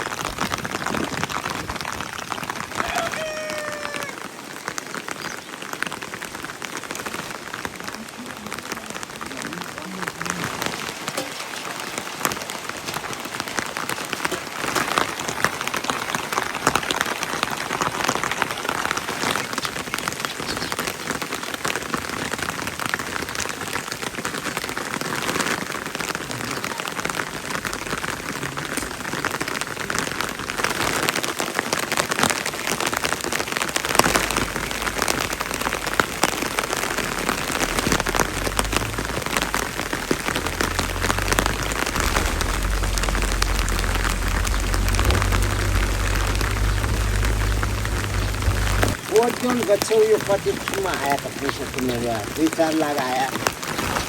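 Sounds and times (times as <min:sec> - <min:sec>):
heavy rain: 0:00.0 - 0:54.0
low rumble: 0:33.7 - 0:49.0.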